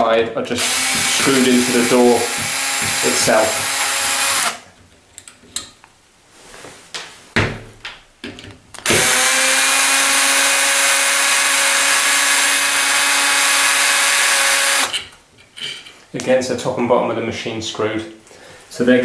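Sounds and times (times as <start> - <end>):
power drill running: 0.6 - 4.6, 8.8 - 15.2.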